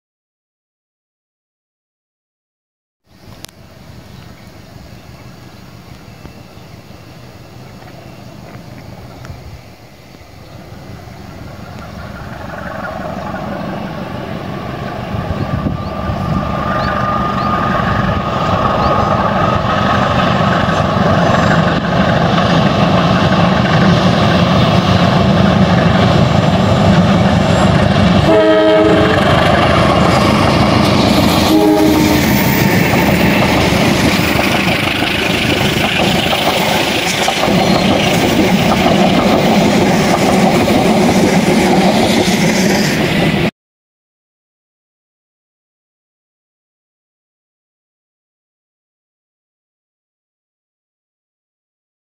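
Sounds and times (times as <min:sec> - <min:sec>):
diesel locomotive engines rumbling: 0:03.1 - 0:43.5
train wheels clattering on rails: 0:16.8 - 0:43.5
train horn toots: 0:28.2 - 0:29.4, 0:31.4 - 0:32.7.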